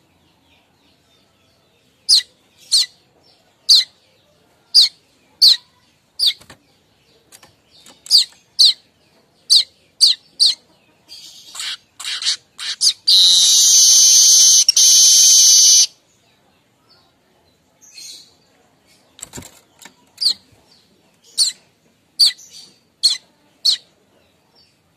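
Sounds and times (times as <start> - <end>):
bird chirping: 0.0 - 24.9
bird buzzing chatter: 11.6 - 15.9.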